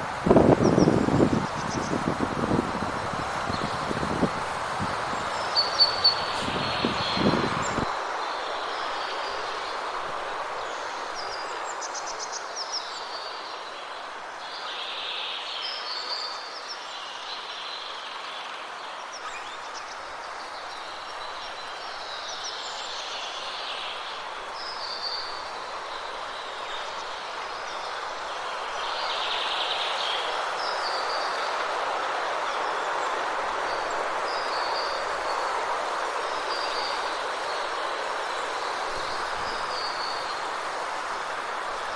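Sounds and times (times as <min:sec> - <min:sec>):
wind rushing: 0:00.0 - 0:07.9
birds calling: 0:00.4 - 0:07.9.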